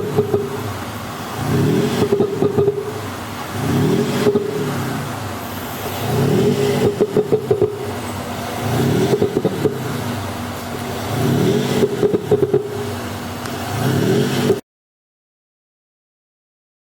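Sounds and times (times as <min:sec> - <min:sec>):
exhaust pops and crackles: 0:00.0 - 0:14.6
synthesized engine revving: 0:00.0 - 0:14.6.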